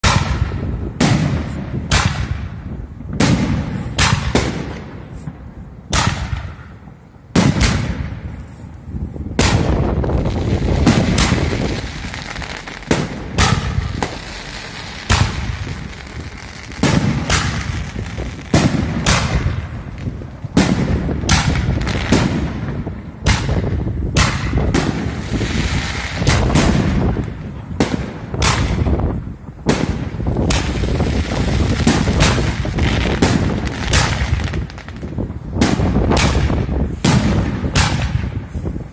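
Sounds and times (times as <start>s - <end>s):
firework crackling: 7.4s - 38.9s
firework launch thumps: 9.4s - 22.5s
firework shells bursting: 9.4s - 22.7s, 23.3s - 29.0s, 29.8s - 38.4s.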